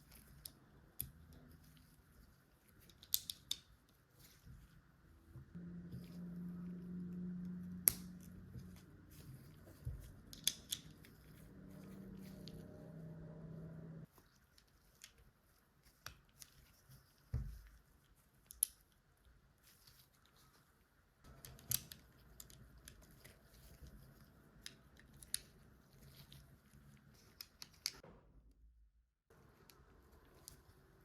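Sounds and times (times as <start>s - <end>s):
low hum: 5.4s - 14.1s.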